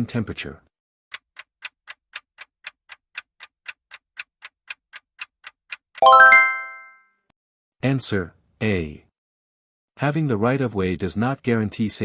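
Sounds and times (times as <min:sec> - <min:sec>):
clock ticking: 0:01.1 - 0:06.6
bright rising chime: 0:06.0 - 0:07.0.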